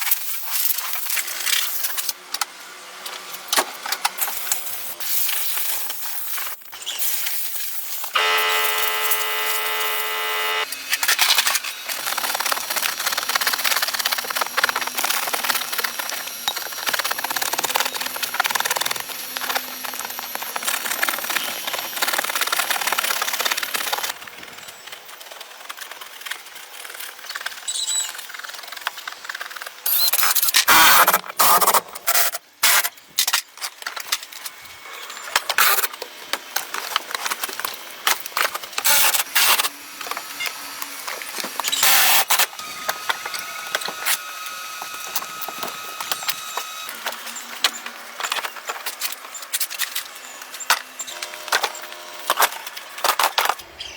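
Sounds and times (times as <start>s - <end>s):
short loud tool bursts: 8.1s - 11.4s
faint steady whine: 8.2s - 10.7s.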